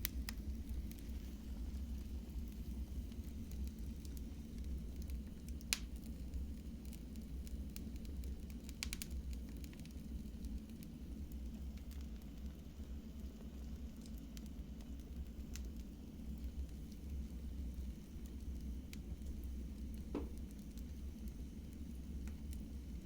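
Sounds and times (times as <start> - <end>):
fire pops: 0.0 - 6.4, 7.4 - 9.8, 15.5 - 22.9
wood fire crackling: 0.0 - 23.0.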